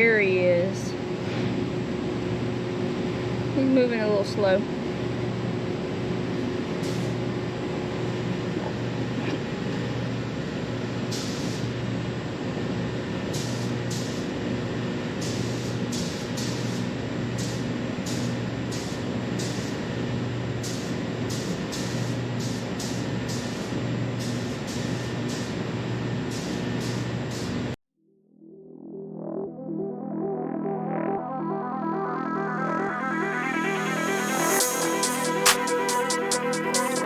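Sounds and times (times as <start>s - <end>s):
ventilation fan rushing: 0.0s - 27.8s, 34.4s - 37.0s
paint spray hissing bursts: 34.6s - 37.0s.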